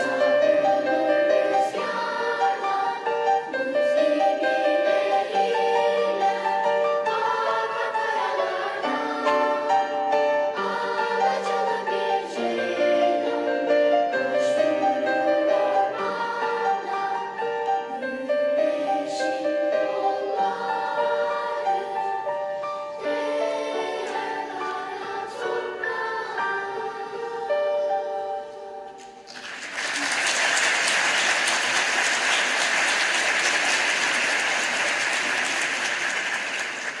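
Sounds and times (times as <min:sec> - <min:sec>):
children's choir singing: 0:00.0 - 0:29.3
audience applause: 0:29.3 - 0:37.0.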